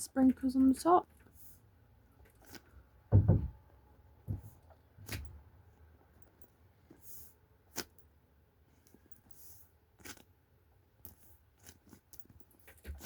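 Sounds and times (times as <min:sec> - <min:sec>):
soft low handling thump: 0:03.1 - 0:03.6
handling knocks and clicks: 0:11.8 - 0:13.0.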